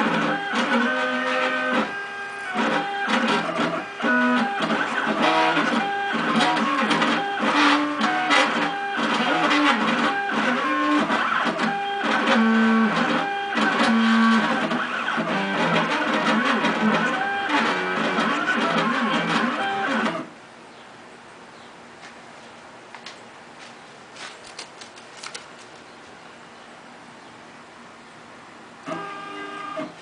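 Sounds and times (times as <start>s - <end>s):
stepper motors whining: 0.0s - 20.3s.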